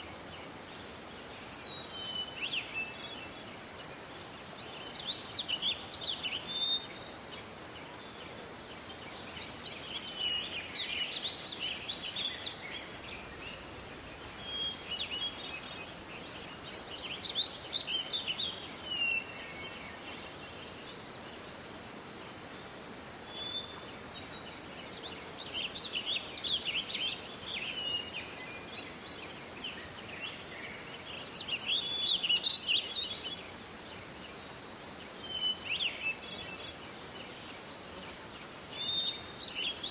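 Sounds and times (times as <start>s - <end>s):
steady background hiss: 0.0s - 39.9s
songbird twittering: 8.0s - 21.0s, 23.2s - 33.6s.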